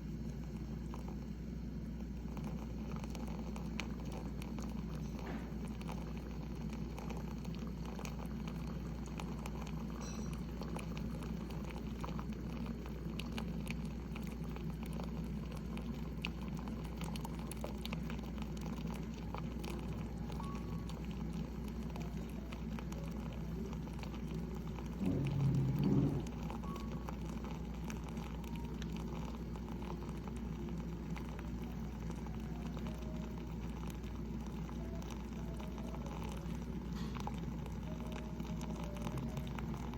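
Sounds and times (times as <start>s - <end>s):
coffee maker bubbling and spitting: 0.0s - 39.9s
low rumble: 25.0s - 26.4s.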